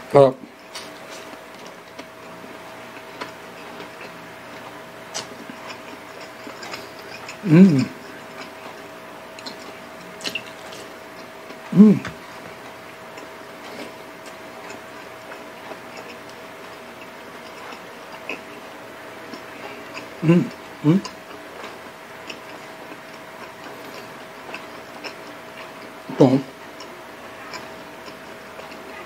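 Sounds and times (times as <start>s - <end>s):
chewing mouth clicks and smacks: 3.0s - 7.4s, 8.2s - 18.6s, 21.0s - 26.0s
person humming: 7.4s - 8.0s, 11.7s - 12.2s, 20.2s - 21.1s.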